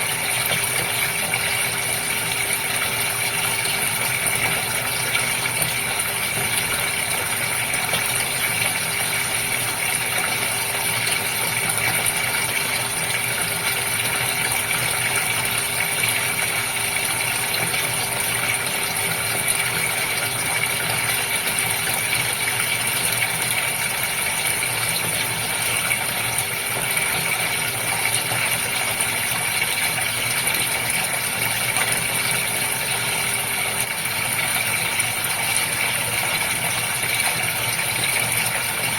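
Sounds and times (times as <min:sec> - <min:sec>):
fish tank water splashing: 0:00.0 - 0:38.9
mechanical hum: 0:00.0 - 0:38.9.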